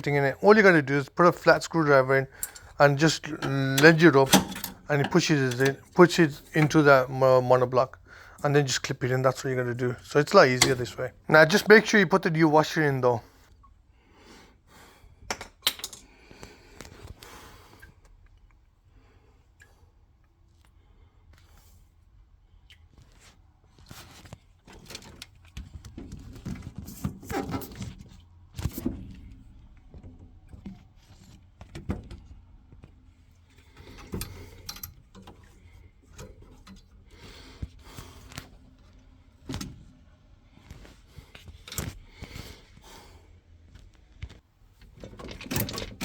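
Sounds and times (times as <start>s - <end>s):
metal pipe fittings clinking: 0.5s - 7.2s, 10.2s - 11.9s, 33.8s - 36.9s.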